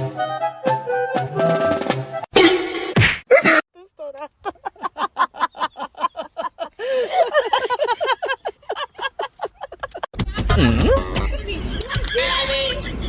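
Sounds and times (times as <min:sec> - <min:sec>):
voices: 0:03.8 - 0:10.1.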